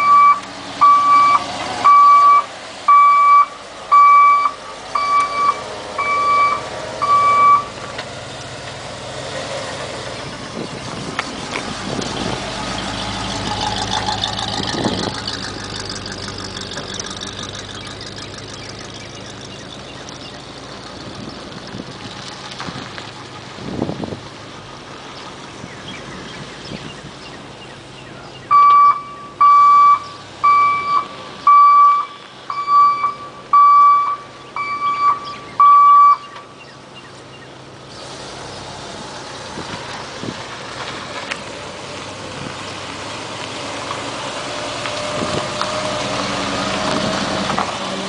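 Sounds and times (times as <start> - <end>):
truck warning beeper: 0.0 - 7.8, 28.5 - 36.4
truck engine running: 0.0 - 48.0.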